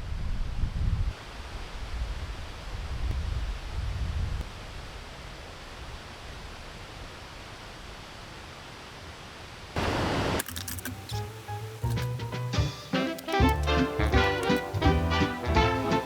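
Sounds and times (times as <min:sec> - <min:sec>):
wind: 0:00.0 - 0:16.0
rain: 0:01.1 - 0:16.0
upbeat background music: 0:10.9 - 0:16.0.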